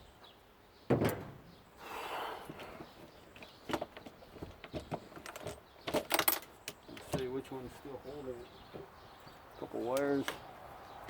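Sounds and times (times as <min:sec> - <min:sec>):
sharp metal clunk: 0:00.9 - 0:01.4
tools and metal parts clicking: 0:04.6 - 0:07.2.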